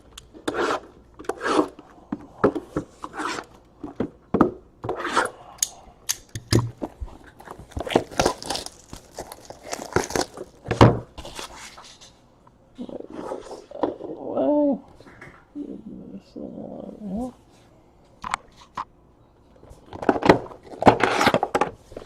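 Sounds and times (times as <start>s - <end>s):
packaging being torn open: 7.4s - 10.6s.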